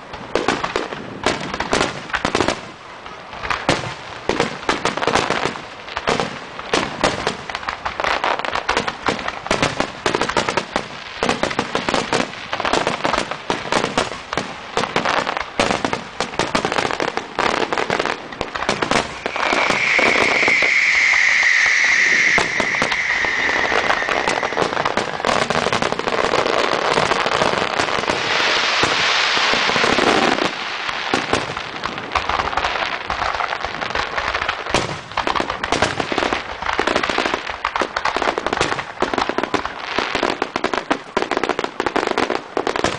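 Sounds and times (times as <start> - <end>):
fireworks bangs and crackles: 0.0 - 42.9
whistling firework: 17.6 - 31.5
thick rushing crackle: 18.6 - 26.2.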